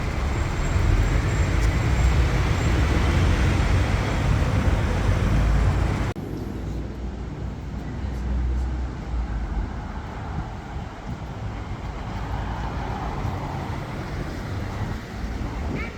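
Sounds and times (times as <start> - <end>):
car engines running: 0.0 - 15.9
tyre noise from passing vehicles: 0.0 - 15.9.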